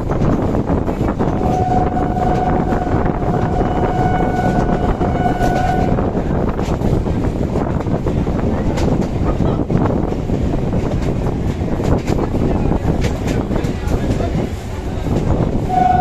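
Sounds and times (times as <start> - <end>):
moving train rumble: 0.0 - 16.0
train horn: 1.3 - 6.2, 15.6 - 16.0.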